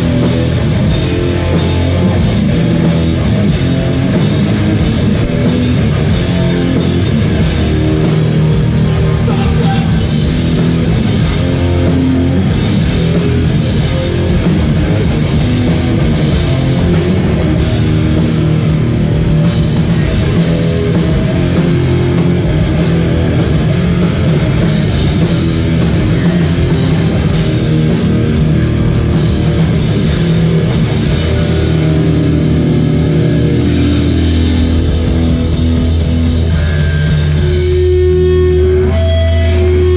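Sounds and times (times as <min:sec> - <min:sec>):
bass guitar: 0:00.0 - 0:39.9
distorted electric guitars: 0:00.0 - 0:39.9
drums: 0:00.0 - 0:39.9.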